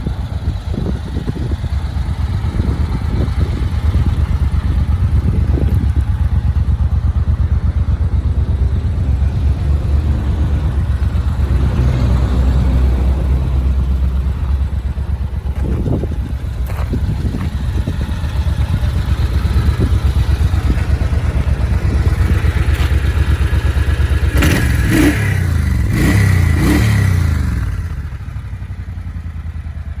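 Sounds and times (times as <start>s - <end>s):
motorcycle engine idling and revving: 0.0s - 30.0s.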